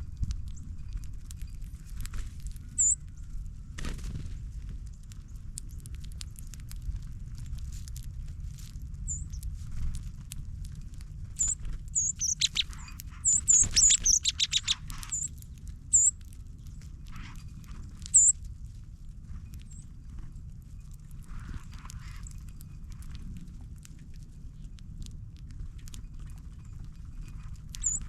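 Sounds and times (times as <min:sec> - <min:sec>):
steady low rumble: 0:00.0 - 0:28.0
songbirds chip notes: 0:02.7 - 0:03.3, 0:09.0 - 0:09.5, 0:11.4 - 0:16.7, 0:18.0 - 0:18.4, 0:27.8 - 0:28.0.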